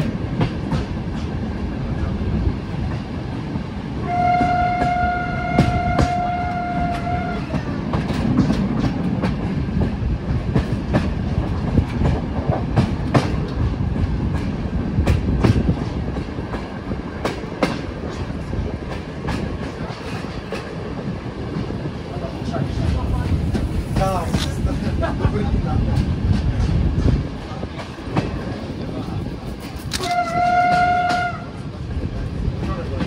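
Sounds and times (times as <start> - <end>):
train wheels clacking over rail joints: 0.0 - 1.6, 2.8 - 33.0
train warning signal: 4.0 - 7.7, 30.0 - 31.6.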